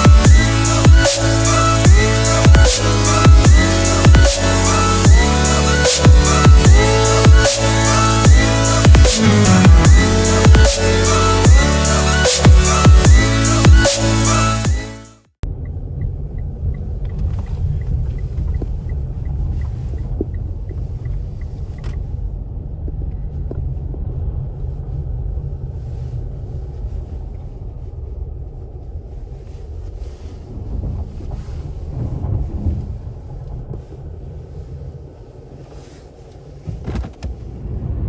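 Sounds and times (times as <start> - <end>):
road rumble in car cabin: 15.4 - 38.0.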